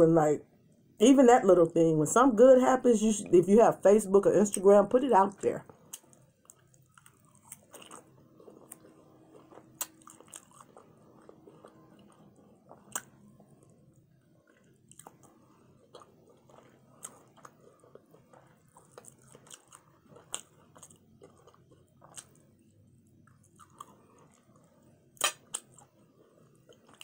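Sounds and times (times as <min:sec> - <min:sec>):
person chewing: 0:05.7 - 0:27.0.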